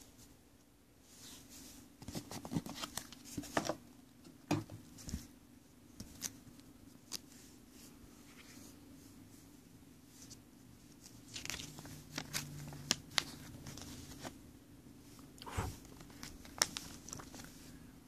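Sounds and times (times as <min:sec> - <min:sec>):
low steady hum: 0:00.0 - 0:18.0
packaging rustling: 0:15.8 - 0:17.6.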